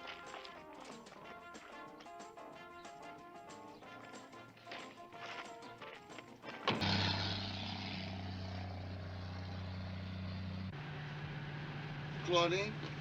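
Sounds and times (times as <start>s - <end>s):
car engine starting and running: 6.5s - 13.0s.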